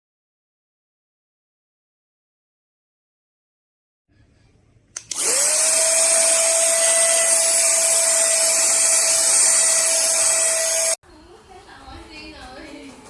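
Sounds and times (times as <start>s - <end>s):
vacuum motor whine and air rush: 5.0s - 11.0s.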